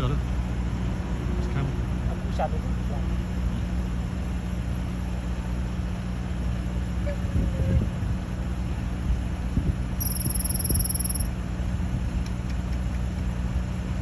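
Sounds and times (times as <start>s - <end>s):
vehicle engine idling: 0.0s - 14.0s
high fast-pulsed trill: 10.0s - 11.3s.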